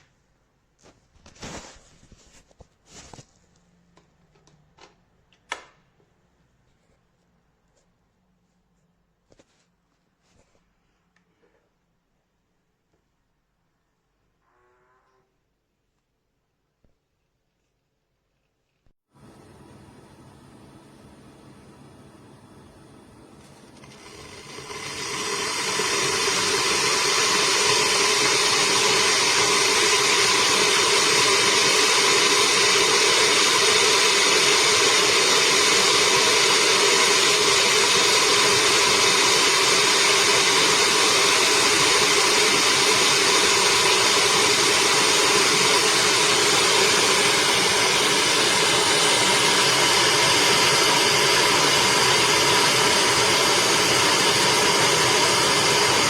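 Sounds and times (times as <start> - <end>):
electric kettle heating water: 19.1 - 56.0.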